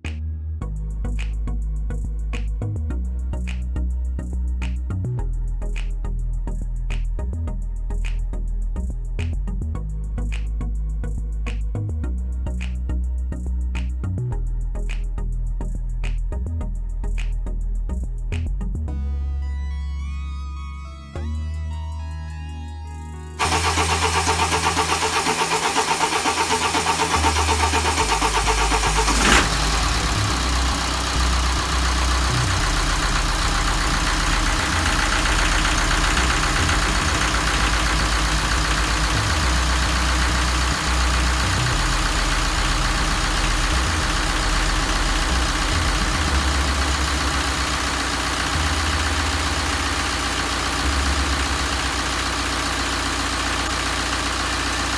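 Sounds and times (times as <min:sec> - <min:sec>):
diesel engine idling: 0:23.3 - 0:54.9.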